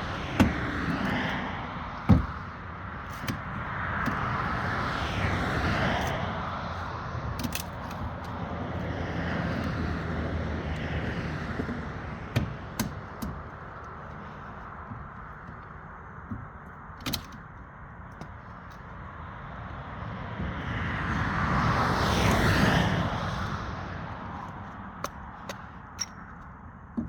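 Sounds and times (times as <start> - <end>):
sharp knocks: 2.1 - 2.4.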